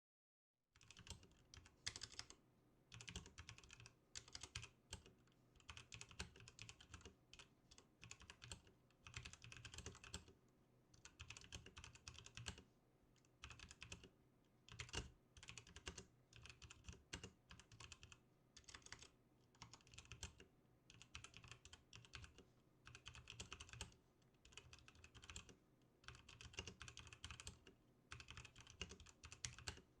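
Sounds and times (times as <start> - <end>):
mechanical keyboard typing: 0.8 - 10.4, 11.0 - 12.6, 13.3 - 14.1, 14.7 - 29.9.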